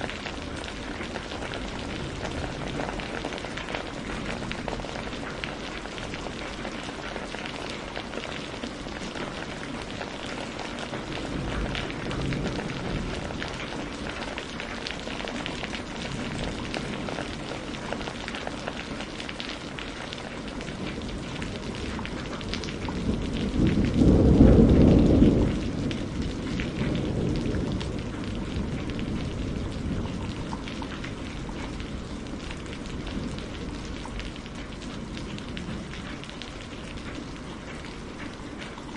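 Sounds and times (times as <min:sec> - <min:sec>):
steady rain falling: 0:00.0 - 0:38.9
deep roll of thunder: 0:09.6 - 0:14.7, 0:20.9 - 0:37.8.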